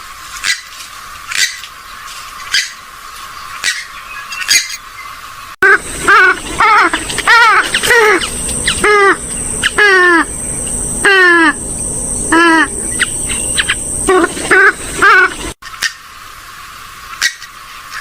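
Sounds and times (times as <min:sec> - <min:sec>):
waterbird nasal calls: 0:05.6 - 0:16.0.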